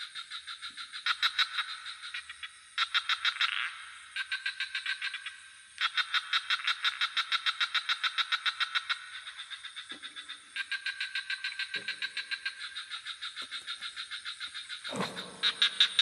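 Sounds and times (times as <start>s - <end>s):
frogs rapid pulsed calls: 0.0s - 16.0s
deep frog croaks: 10.7s - 16.0s.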